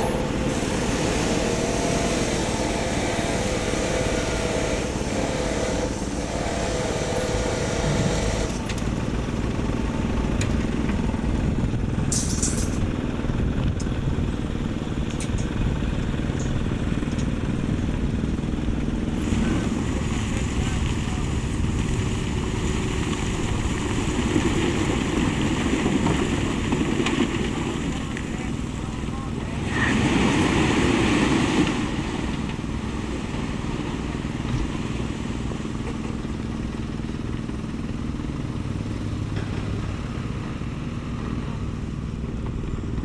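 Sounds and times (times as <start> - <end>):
thin whine: 0.0 - 9.1
heavy machinery diesel engines: 0.0 - 43.0.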